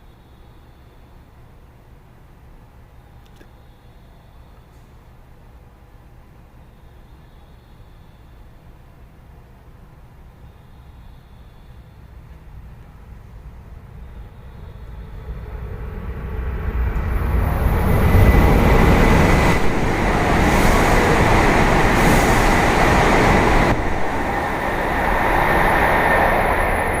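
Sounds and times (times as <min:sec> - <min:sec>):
bullet train rushing past: 0:11.6 - 0:27.0.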